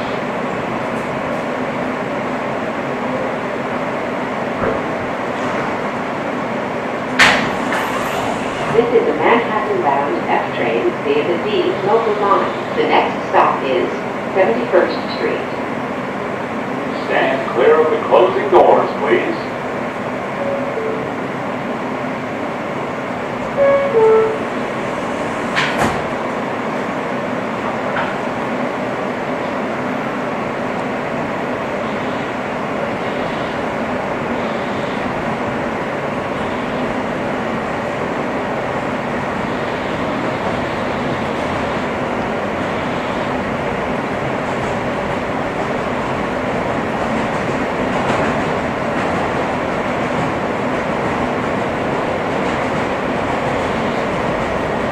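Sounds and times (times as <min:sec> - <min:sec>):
subway train running: 0:00.0 - 0:54.9.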